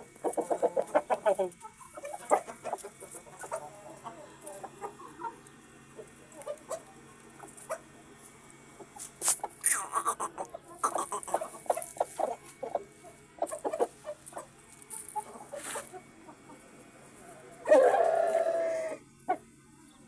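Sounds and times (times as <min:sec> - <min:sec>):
chickens clucking: 0:00.0 - 0:19.5
long loud chicken call: 0:17.3 - 0:19.4.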